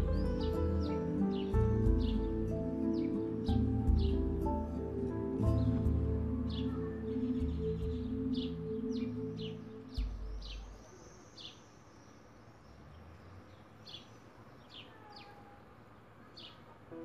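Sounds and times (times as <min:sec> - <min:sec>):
background music: 0:00.0 - 0:10.9
bird chirping: 0:00.0 - 0:17.0.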